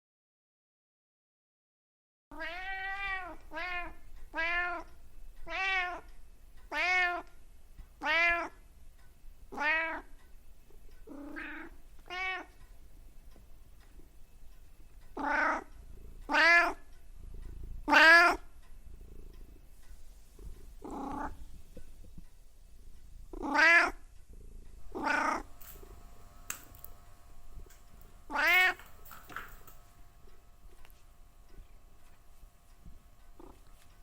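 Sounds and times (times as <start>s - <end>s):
cat meowing: 2.3s - 6.1s, 6.7s - 7.3s, 8.0s - 8.6s, 9.5s - 10.1s, 11.1s - 12.6s, 15.2s - 15.7s, 16.3s - 16.8s, 17.9s - 18.4s, 23.4s - 24.0s, 24.9s - 25.5s, 28.3s - 28.8s.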